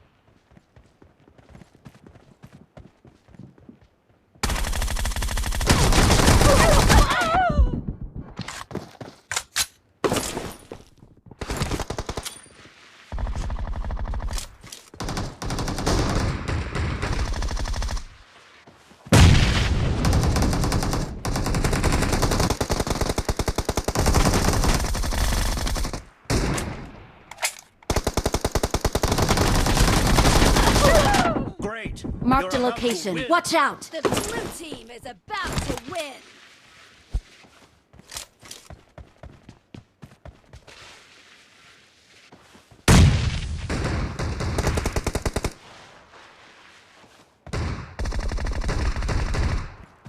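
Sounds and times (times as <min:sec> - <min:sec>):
video game automatic gunfire: 0:04.4 - 0:07.0, 0:20.0 - 0:26.0, 0:27.9 - 0:31.1.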